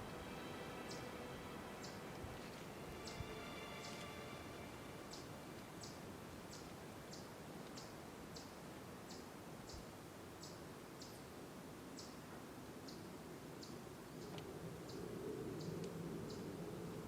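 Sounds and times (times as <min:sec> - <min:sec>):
bird chirping: 0:00.0 - 0:02.1, 0:03.0 - 0:11.3
faint woodland hiss: 0:00.0 - 0:17.0.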